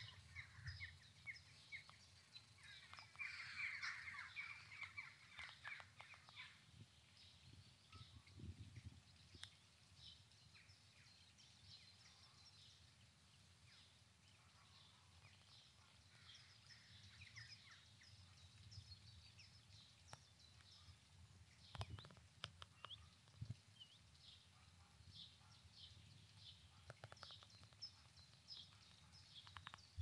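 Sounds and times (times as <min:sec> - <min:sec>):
songbirds chirping and trilling: 0:00.0 - 0:30.0
sharp clicks: 0:21.7 - 0:23.0, 0:29.4 - 0:30.0.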